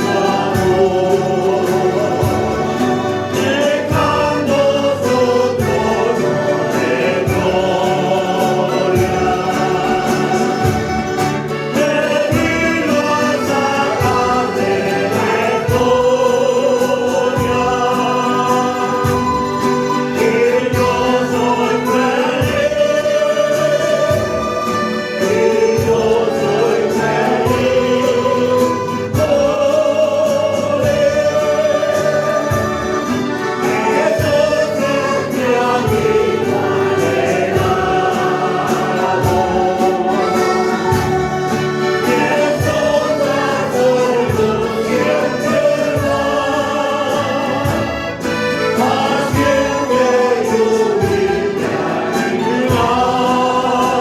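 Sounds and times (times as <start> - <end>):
choir singing a hymn: 0.0 - 54.0
instrumental accompaniment with beat: 0.0 - 54.0.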